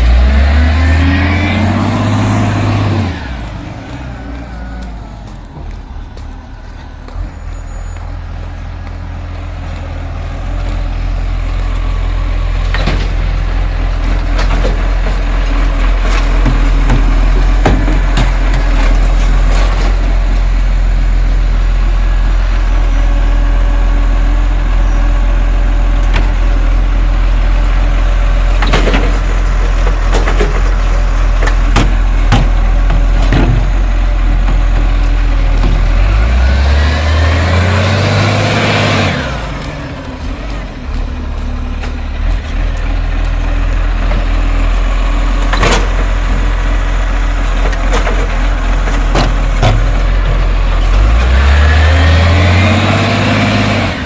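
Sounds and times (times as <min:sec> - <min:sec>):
truck engine droning: 0:00.0 - 0:54.0
knocks and clatters: 0:12.6 - 0:20.4, 0:28.5 - 0:36.3, 0:45.4 - 0:46.8, 0:47.4 - 0:51.4.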